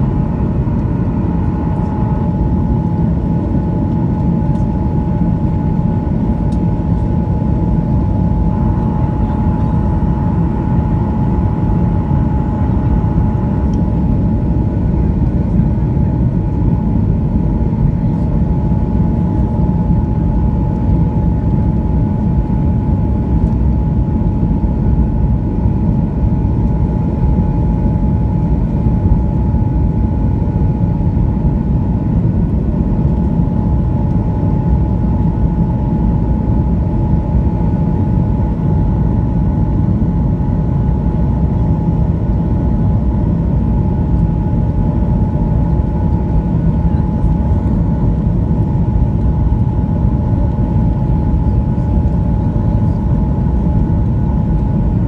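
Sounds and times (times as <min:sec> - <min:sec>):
airplane cabin engine rumble: 0:00.0 - 0:55.0
jet engine whine: 0:00.0 - 0:55.0.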